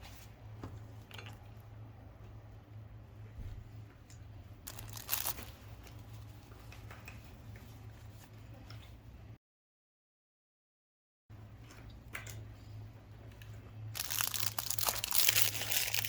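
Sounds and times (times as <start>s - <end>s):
low steady hum: 0.0s - 9.4s, 11.3s - 16.0s
plastic packaging crinkling: 4.6s - 5.7s, 13.9s - 16.0s
plastic tearing rustle: 4.7s - 5.6s, 13.9s - 16.0s.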